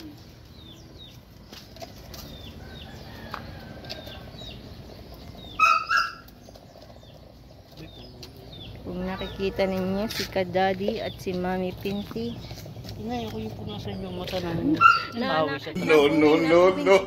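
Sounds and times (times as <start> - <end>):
high-pitched bird calls: 0.0 - 10.0
small birds chirping: 0.0 - 15.8.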